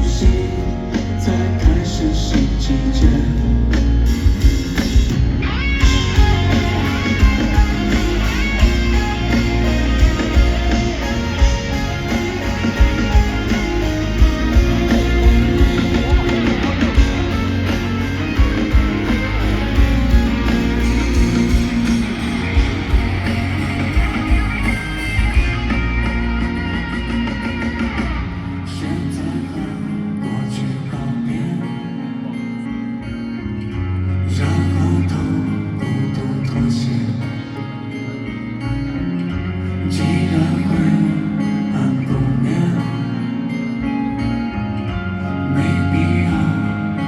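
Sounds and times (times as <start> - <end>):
live band playing instrumental: 0.0 - 29.1.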